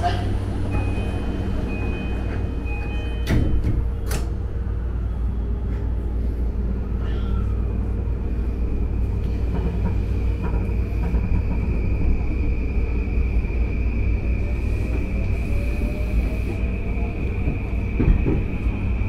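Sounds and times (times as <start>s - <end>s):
train doors shutting: 0.0s - 4.8s, 9.0s - 19.0s
train rumble: 0.0s - 19.0s.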